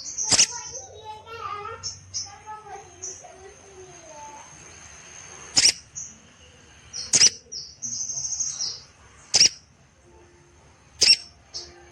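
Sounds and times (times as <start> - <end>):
sharp bird calls: 0.0 - 1.1, 5.3 - 6.2, 6.9 - 9.7, 11.0 - 11.6
short high bird notes: 11.0 - 11.3.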